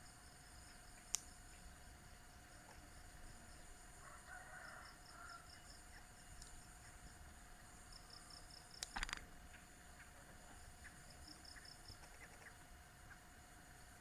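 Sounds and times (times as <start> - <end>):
sharp clicks: 1.0 - 1.3, 8.8 - 9.2
distant rooster crowing: 3.9 - 5.8.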